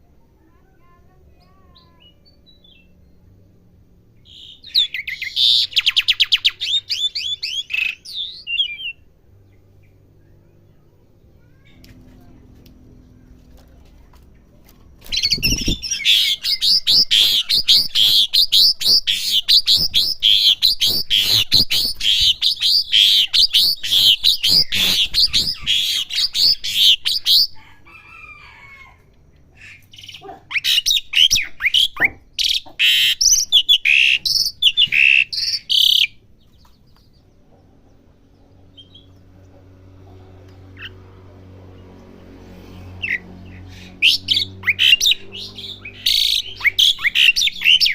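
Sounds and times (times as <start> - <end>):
songbird chattering whistled song: 1.3 - 3.4, 4.2 - 11.0, 14.4 - 27.6, 29.4 - 39.4, 43.0 - 47.9.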